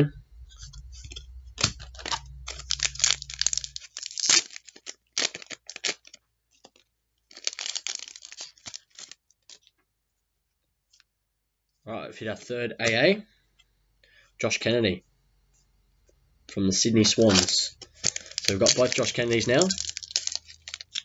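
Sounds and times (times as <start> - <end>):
wrapper tearing and crinkling: 1.6 - 9.7, 17.1 - 21.0.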